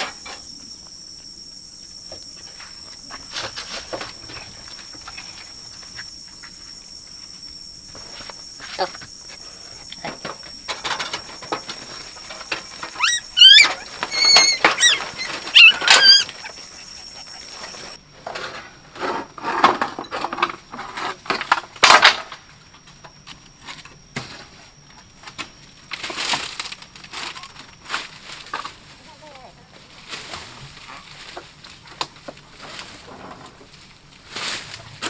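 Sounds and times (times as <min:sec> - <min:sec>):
rustling and knocking: 0:02.0 - 0:18.5
small animal squeaky cries: 0:12.2 - 0:18.0.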